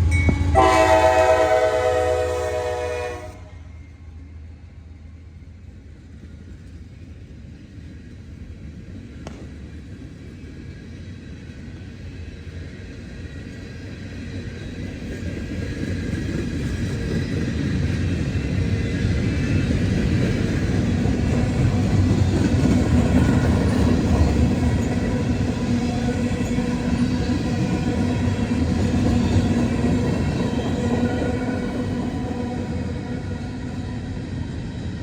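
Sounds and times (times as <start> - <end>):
train horn: 0.0 - 4.0
passing train rumble: 0.0 - 35.0.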